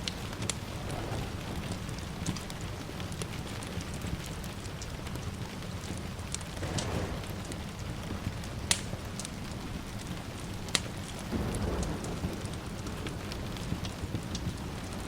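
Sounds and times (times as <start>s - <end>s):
distant thunder rumble: 0.0s - 15.0s
fire popping: 0.0s - 15.0s
steady rain: 0.0s - 15.0s
wood fire crackling: 0.0s - 15.0s.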